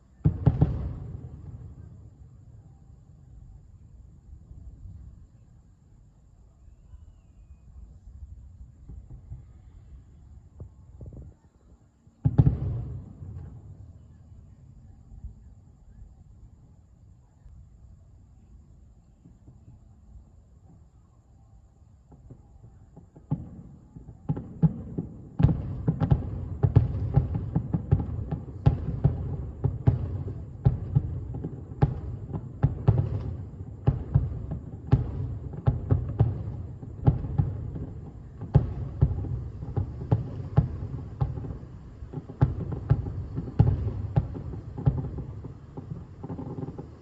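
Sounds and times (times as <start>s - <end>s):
fireworks booms and cracks: 0.1s - 2.5s, 12.2s - 13.9s, 22.1s - 47.0s.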